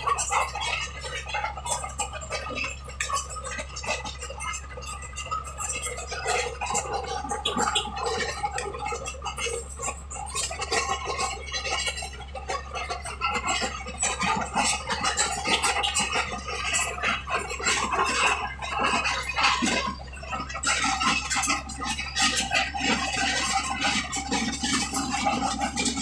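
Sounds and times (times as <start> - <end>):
bulldozer engine hum: 0.0 - 26.0.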